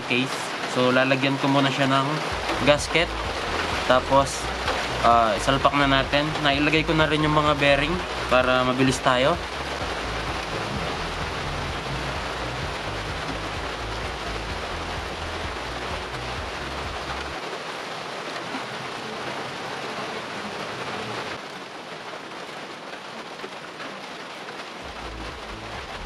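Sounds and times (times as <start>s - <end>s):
rain hissing: 0.0s - 26.0s
low rumble: 2.3s - 17.4s.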